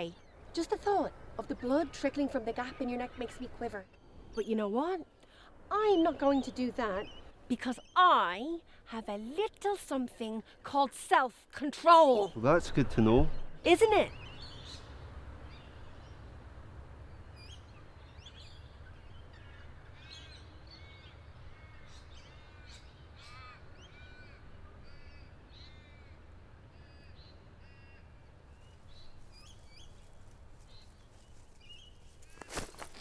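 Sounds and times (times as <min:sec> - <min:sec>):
low outdoor rumble: 0:12.3 - 0:33.0
birds making harsh calls: 0:18.3 - 0:26.1.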